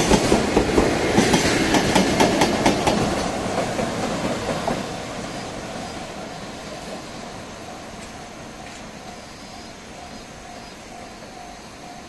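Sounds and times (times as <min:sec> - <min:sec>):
train wheels clacking over rail joints: 0:00.0 - 0:05.9
steady train rumble: 0:00.0 - 0:12.0.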